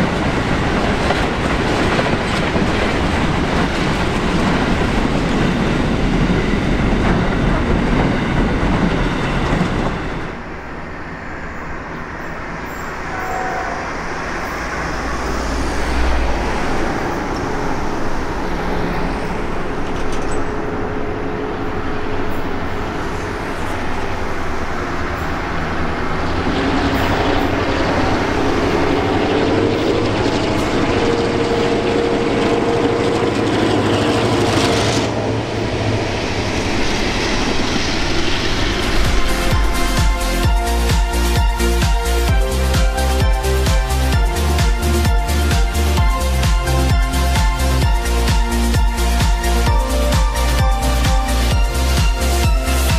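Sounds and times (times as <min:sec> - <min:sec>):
diesel locomotive engines droning: 0:00.0 - 0:52.9.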